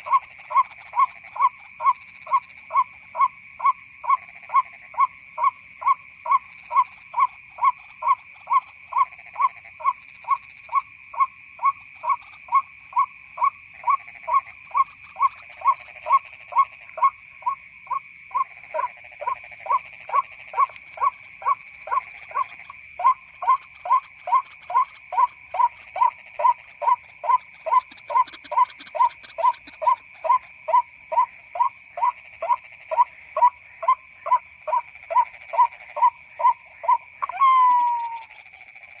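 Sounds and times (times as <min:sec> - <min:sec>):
bird call kwak notes: 0:22.4 - 0:31.7, 0:34.7 - 0:38.5.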